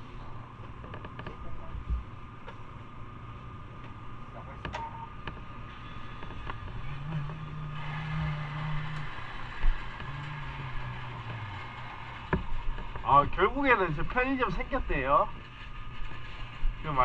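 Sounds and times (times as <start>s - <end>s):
motorcycle engine running: 6.3s - 13.2s.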